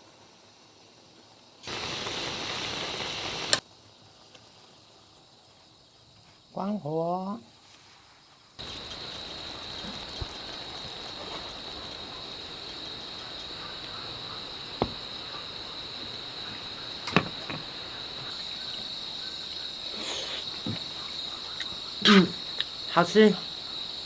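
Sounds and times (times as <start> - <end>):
insects droning: 0.0 - 24.0
sharp clicks: 8.6 - 19.6.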